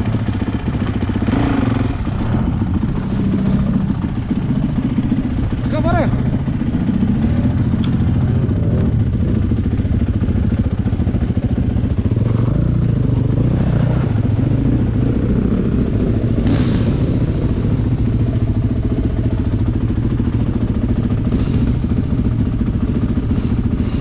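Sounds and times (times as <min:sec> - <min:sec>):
dirt bike engine running: 0:00.0 - 0:24.0
sharp click: 0:07.8 - 0:08.1.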